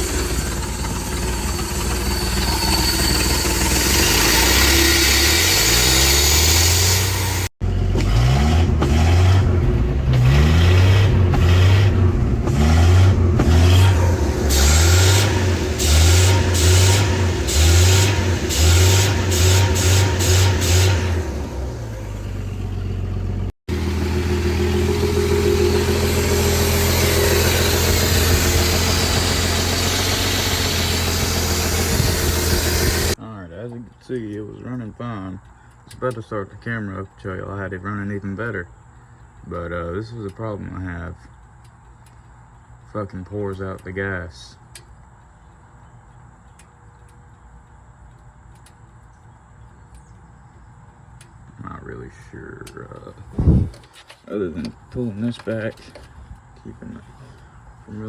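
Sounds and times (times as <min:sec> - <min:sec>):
engine revving in throttle blips: 0:00.0 - 0:33.2.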